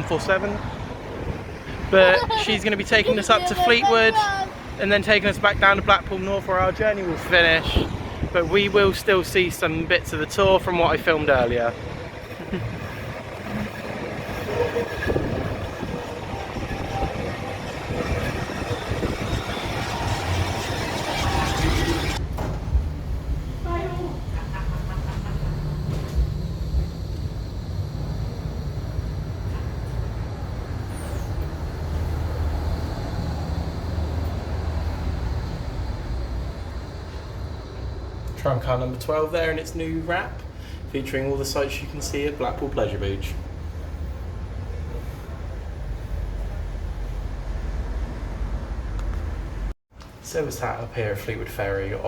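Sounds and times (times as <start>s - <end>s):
tram rumbling on rails: 0.0s - 39.4s
faint high squeal: 30.8s - 32.0s.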